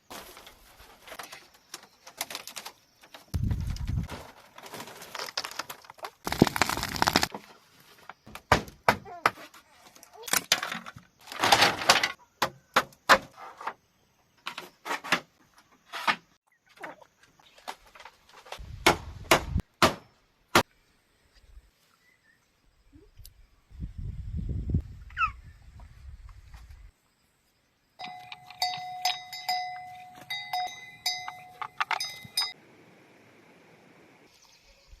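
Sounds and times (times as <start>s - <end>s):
bamboo being chopped: 8.3s - 9.4s, 18.8s - 20.7s.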